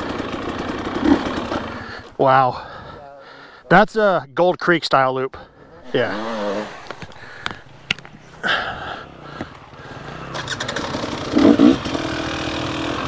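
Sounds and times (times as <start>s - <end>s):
dirt bike engine revving: 0.0s - 2.1s, 5.8s - 13.0s.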